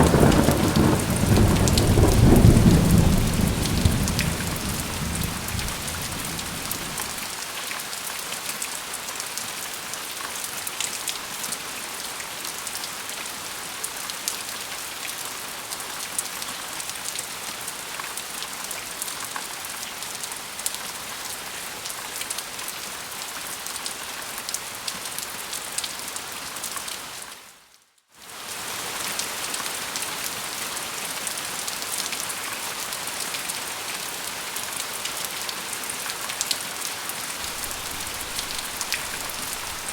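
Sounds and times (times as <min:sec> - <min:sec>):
raindrops ticking: 0:00.0 - 0:07.2, 0:37.4 - 0:39.9
steady rain hiss: 0:00.0 - 0:07.5, 0:37.4 - 0:39.9.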